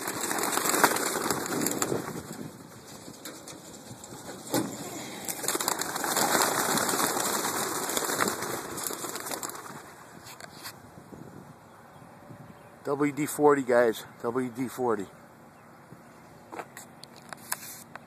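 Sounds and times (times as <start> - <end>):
pigeon wings flapping: 0.0 - 10.1.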